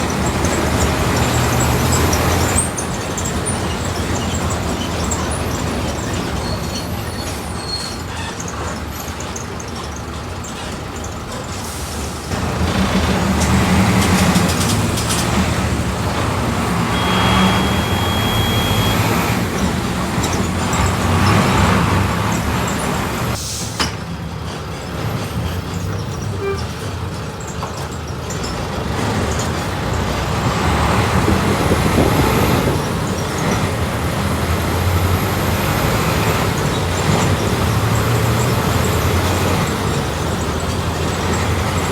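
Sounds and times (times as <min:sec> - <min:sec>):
bus engine running: 0:00.0 - 0:41.9
short high beep: 0:16.8 - 0:19.1.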